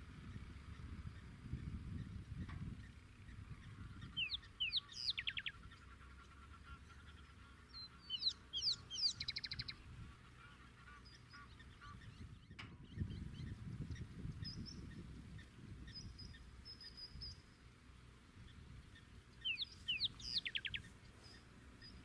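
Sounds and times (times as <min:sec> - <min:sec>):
bird singing whistled trills: 0:03.3 - 0:05.6, 0:07.8 - 0:09.8, 0:15.8 - 0:17.5, 0:19.0 - 0:22.0.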